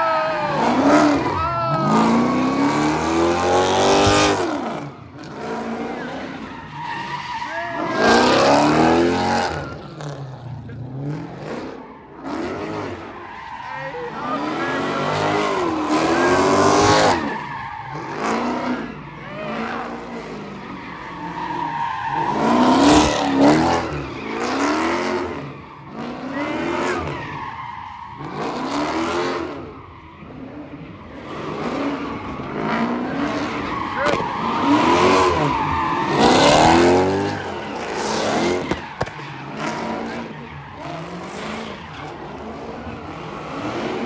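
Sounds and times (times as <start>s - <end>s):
tyres squealing: 0.0s - 4.2s, 33.4s - 39.6s
car engine revving: 0.0s - 13.2s, 13.9s - 27.2s, 28.2s - 44.0s.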